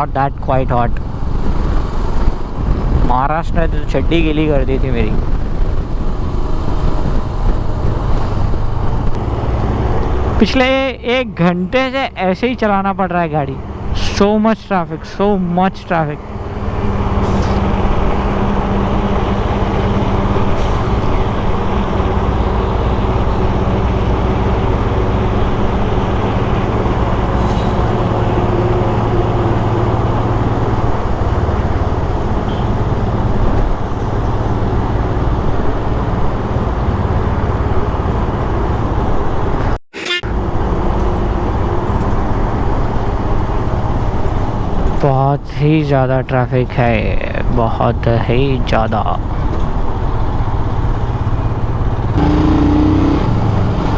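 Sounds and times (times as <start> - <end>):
dense traffic noise: 0.0 - 53.9.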